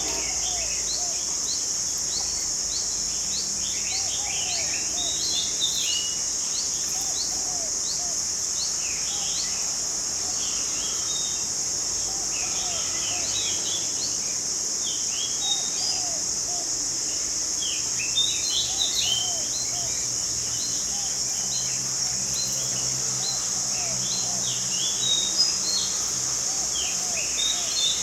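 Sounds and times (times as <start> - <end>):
high-pitched insect drone: 0.0 - 28.0
birds chirping: 17.6 - 28.0.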